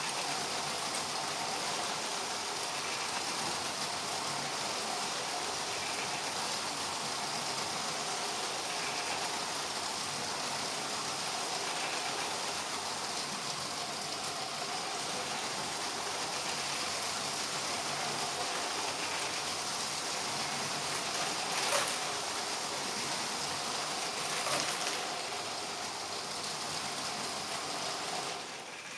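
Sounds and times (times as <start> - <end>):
plastic wheels rolling on track: 0.0 - 28.9
toy train motors whirring: 0.0 - 28.9.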